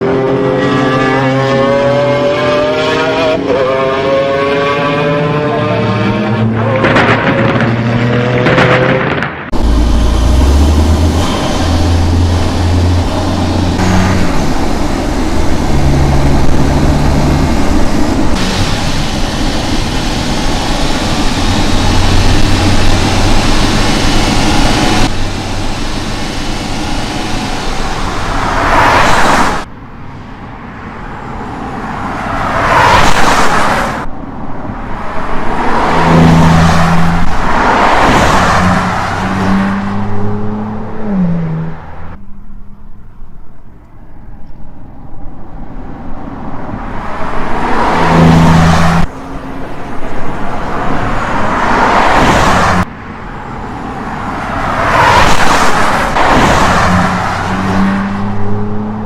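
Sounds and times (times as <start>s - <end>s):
car driving past: 27.0s - 29.7s, 47.0s - 52.9s.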